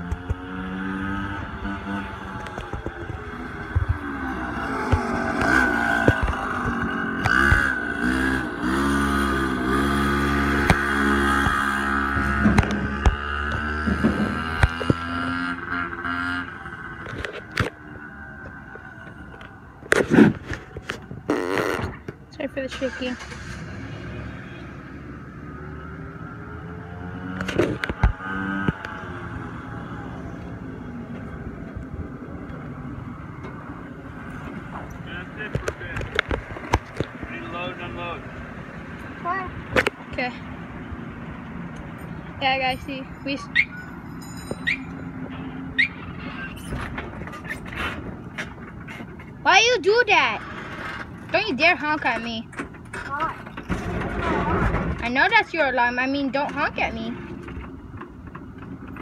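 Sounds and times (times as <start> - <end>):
small engine revving: 0.0 - 17.7, 22.7 - 30.6
engine running: 0.0 - 59.0.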